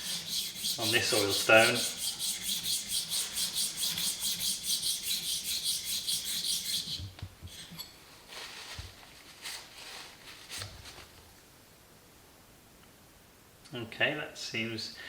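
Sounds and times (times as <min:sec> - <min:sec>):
blade rubbed on oil stone: 0:00.0 - 0:07.9.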